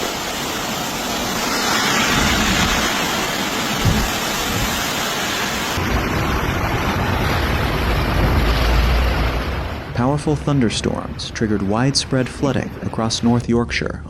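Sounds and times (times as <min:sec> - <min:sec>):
rushing floodwater: 0:00.0 - 0:13.8
low thump: 0:03.8 - 0:04.8.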